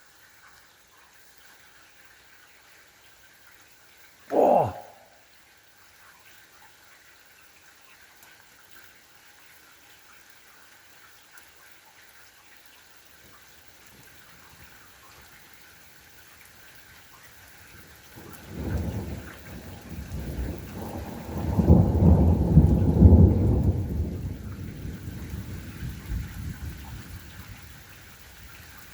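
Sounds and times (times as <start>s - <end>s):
light rain hiss: 0.0s - 28.9s
thunderclap rumbling: 18.4s - 26.7s.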